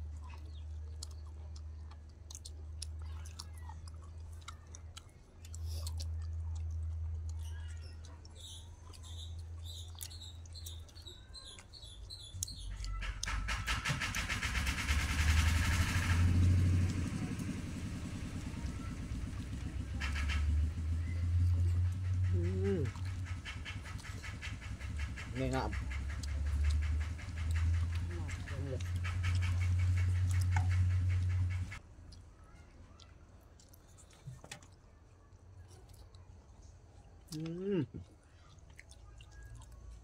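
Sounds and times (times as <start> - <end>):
chewing and eating: 0.0 - 40.0
vehicle engine revving: 13.1 - 31.8.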